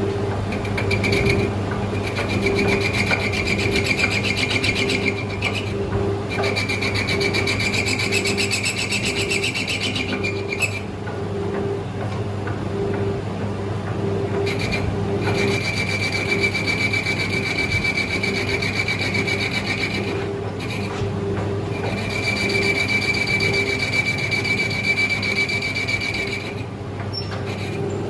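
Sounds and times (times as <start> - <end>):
lathe tool scraping whine: 0.0 - 11.0, 14.1 - 28.0
lathe motor hum: 0.0 - 28.0.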